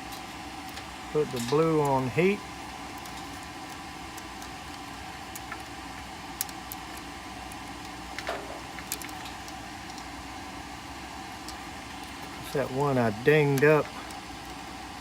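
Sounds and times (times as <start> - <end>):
steady low hum: 0.0 - 15.0
wire connectors clicking: 3.0 - 10.1.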